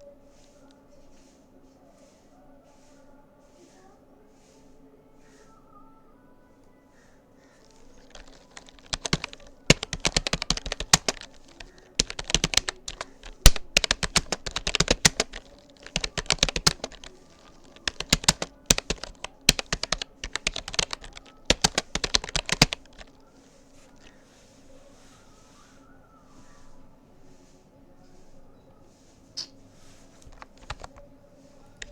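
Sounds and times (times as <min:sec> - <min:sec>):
typing on computer keyboard: 0:07.9 - 0:23.2, 0:30.2 - 0:31.0.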